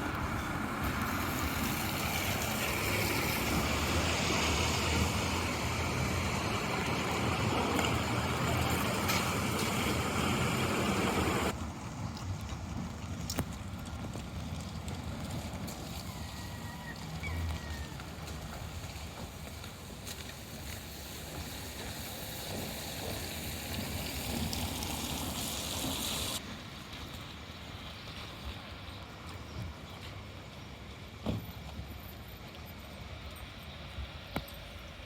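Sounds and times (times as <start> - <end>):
water noise: 0.0 - 11.6, 20.4 - 26.5
high hiss: 21.4 - 26.4.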